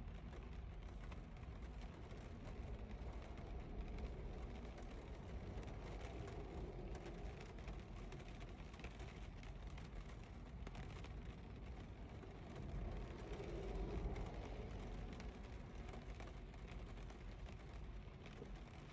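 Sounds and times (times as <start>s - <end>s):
rain on car windows: 0.0s - 18.9s
low rumble: 11.7s - 18.9s.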